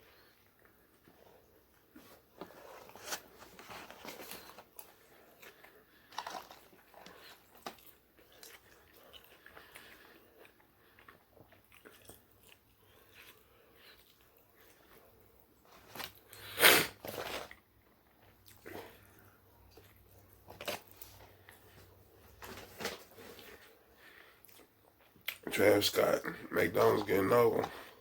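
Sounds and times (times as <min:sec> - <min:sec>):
person crunching food: 0:04.0 - 0:25.5.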